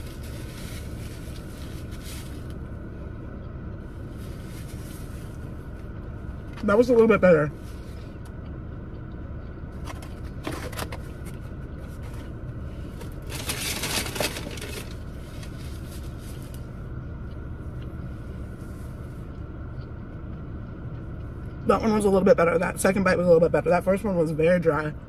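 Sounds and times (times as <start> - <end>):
wrapper rustling: 0.0 - 2.6, 13.2 - 16.3
low hum: 0.0 - 25.0.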